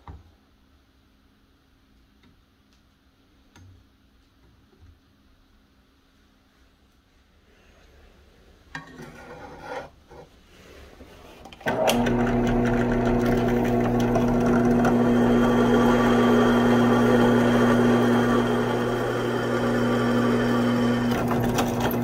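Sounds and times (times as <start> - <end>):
electric drill boring through steel: 11.7 - 22.0.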